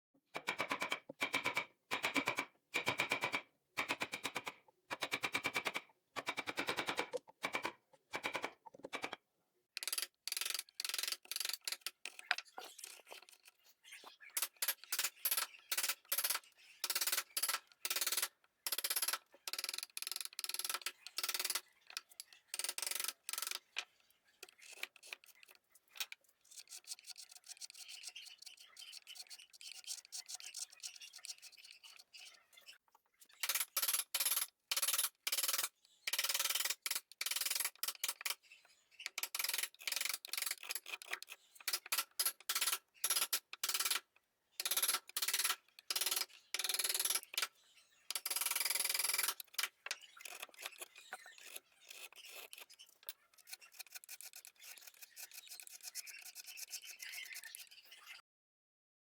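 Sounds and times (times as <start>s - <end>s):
hand tool scraping wood: 50.2s - 57.6s.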